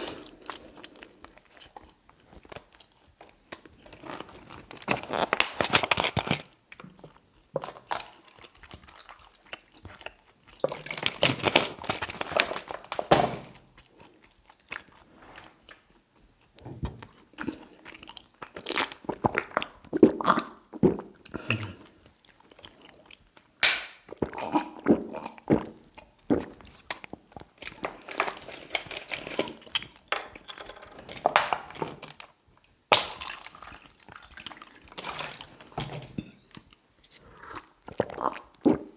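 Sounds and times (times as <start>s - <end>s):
chewing mouth sounds: 36.5s - 38.9s.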